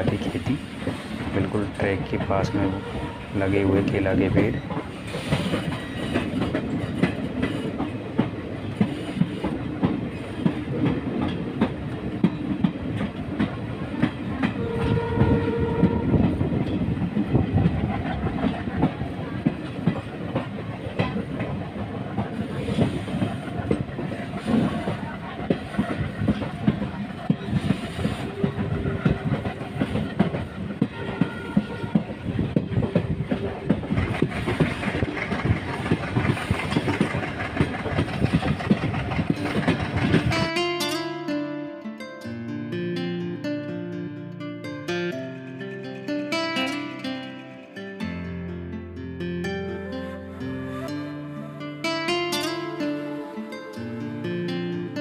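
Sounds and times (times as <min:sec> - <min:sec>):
train coaches rumbling: 0:00.0 - 0:41.4
wheels clicking over rail joints: 0:02.9 - 0:41.0.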